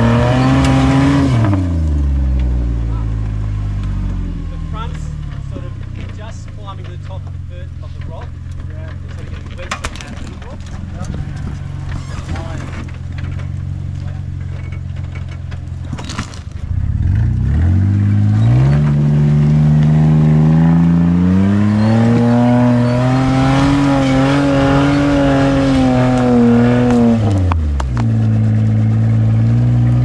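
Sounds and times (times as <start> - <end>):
off-road engine revving under load: 0.0 - 30.0.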